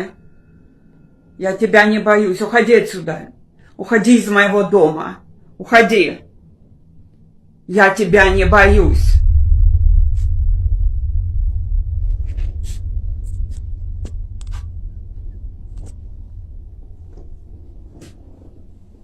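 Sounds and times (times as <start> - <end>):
deep low rumble: 8.1 - 19.0.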